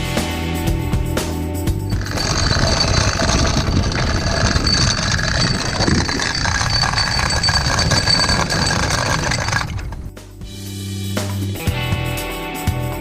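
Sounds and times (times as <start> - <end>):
motor running: 1.9 - 10.0.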